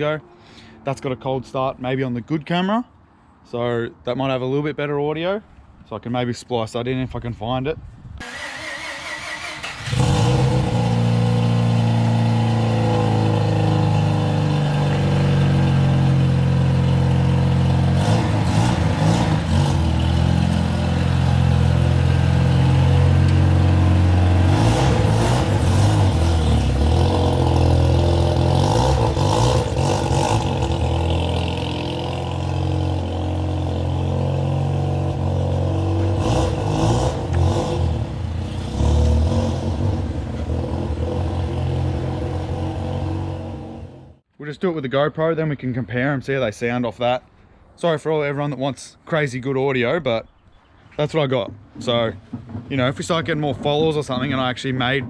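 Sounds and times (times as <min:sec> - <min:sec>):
rotary engine starting and idling: 0:08.2 - 0:34.3.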